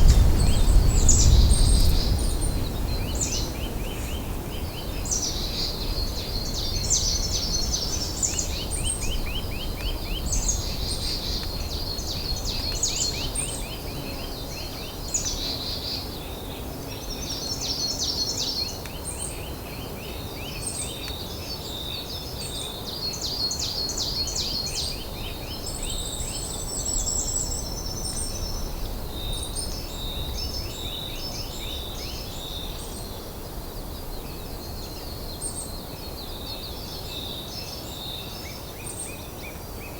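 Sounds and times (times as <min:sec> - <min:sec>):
steady low rumble: 0:00.0 - 0:12.6
songbirds singing: 0:00.0 - 0:39.9.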